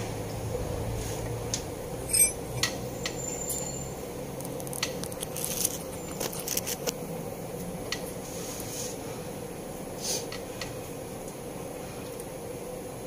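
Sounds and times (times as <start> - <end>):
steady low hum: 0.0 - 3.2
hand tools and metal parts clinking: 2.0 - 2.8
ringing metallic clink: 2.0 - 3.9.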